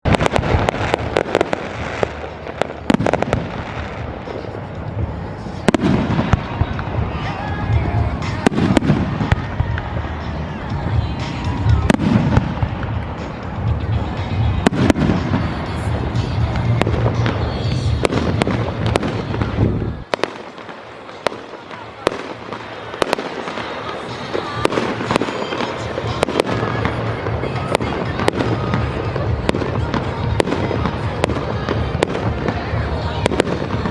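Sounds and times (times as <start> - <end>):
fireworks cracking and popping: 0.0 - 33.9
rumble of firework bursts: 0.1 - 33.9.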